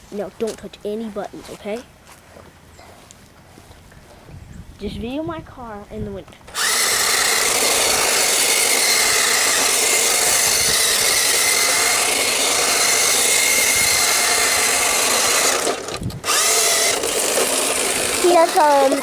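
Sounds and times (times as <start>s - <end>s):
electric motor whining: 6.5s - 19.0s.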